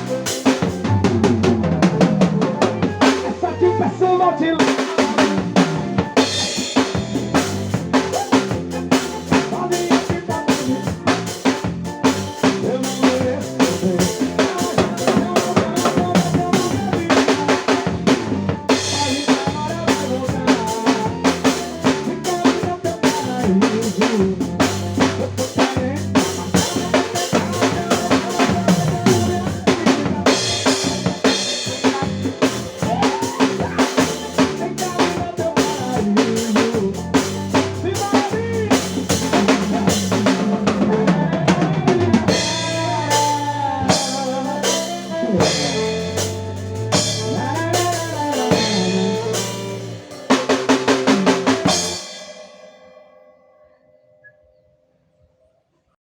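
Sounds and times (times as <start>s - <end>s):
drum kit playing fast beat: 0.0s - 3.5s, 4.6s - 52.6s
recorded song playing: 12.3s - 53.1s.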